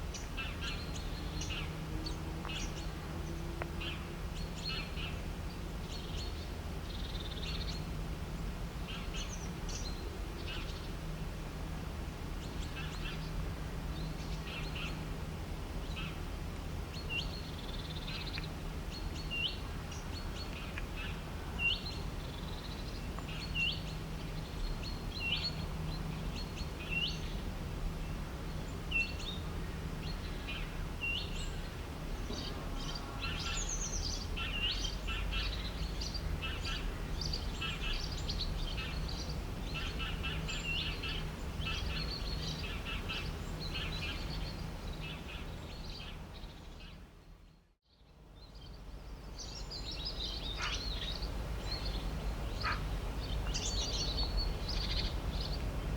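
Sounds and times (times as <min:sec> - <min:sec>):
birds calling and singing: 0:00.1 - 0:07.9, 0:12.4 - 0:15.0, 0:16.9 - 0:27.4, 0:28.0 - 0:47.0, 0:48.0 - 0:55.9.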